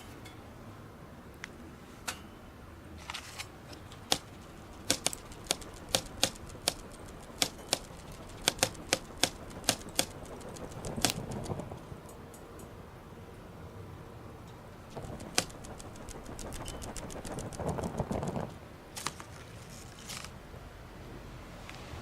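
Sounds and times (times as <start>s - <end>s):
wood fire crackling: 3.8s - 11.9s, 14.9s - 19.3s.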